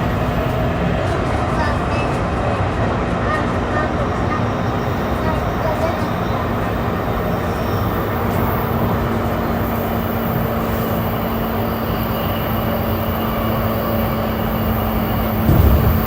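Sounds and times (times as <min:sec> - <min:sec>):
train wheels rumbling on rail: 0:00.0 - 0:16.0
low hum: 0:15.5 - 0:16.0.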